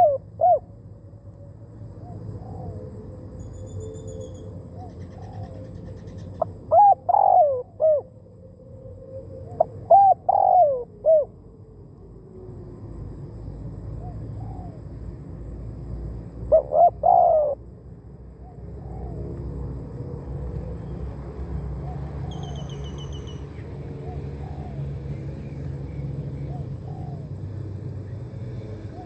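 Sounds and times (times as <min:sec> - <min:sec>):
dove cooing: 0:00.0 - 0:00.7, 0:02.0 - 0:03.1, 0:03.7 - 0:08.1, 0:09.3 - 0:11.3, 0:14.0 - 0:14.8, 0:16.5 - 0:17.6, 0:18.4 - 0:19.4, 0:23.9 - 0:27.6.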